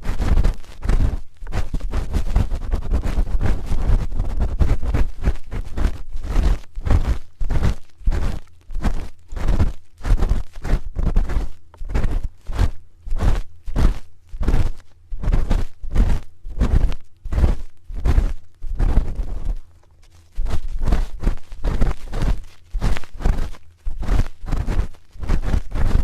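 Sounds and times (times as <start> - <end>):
spoon rubbing microphone: 0.0 - 26.0.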